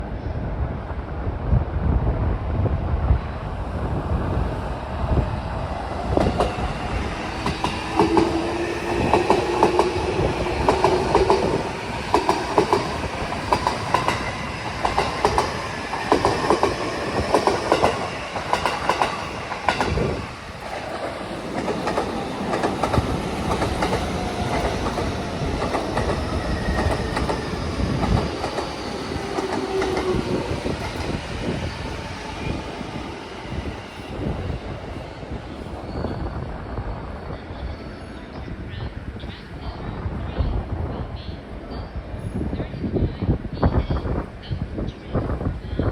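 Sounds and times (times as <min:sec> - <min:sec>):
wind buffeting microphone: 0:00.0 - 0:45.9
train wheels clacking on rail joints: 0:07.4 - 0:20.0, 0:20.8 - 0:31.1.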